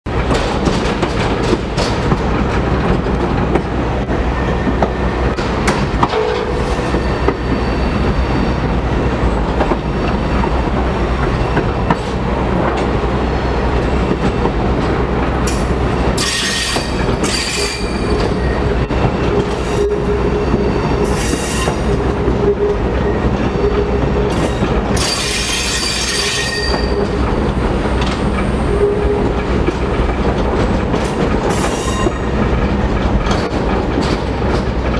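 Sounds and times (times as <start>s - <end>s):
train wheels rumbling on rails: 0.1s - 34.9s
train wheels squealing: 6.3s - 8.7s, 16.2s - 27.2s, 31.5s - 32.4s.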